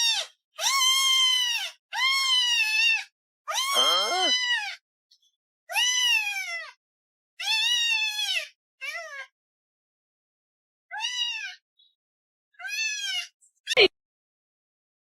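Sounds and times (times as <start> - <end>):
cat meowing loudly: 0.0 - 4.8, 10.9 - 11.6.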